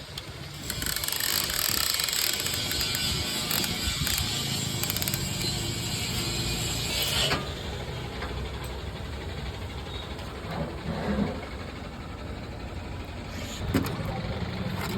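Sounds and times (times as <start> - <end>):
mechanical clatter and clicking: 0.1 - 6.2.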